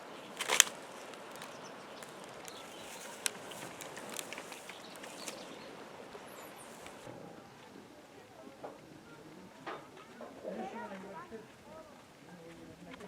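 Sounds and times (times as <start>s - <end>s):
low outdoor hiss: 0.0s - 13.0s.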